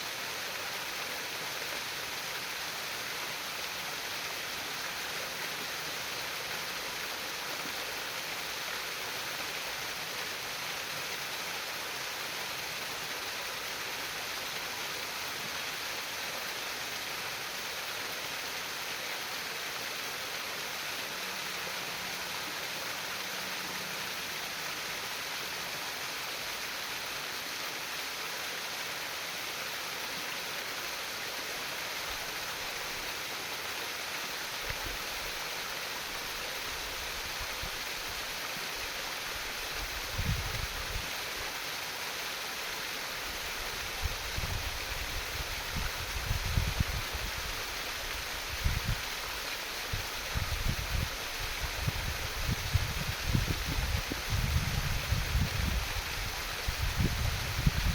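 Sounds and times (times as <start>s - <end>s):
small stream trickling: 0.0s - 57.9s.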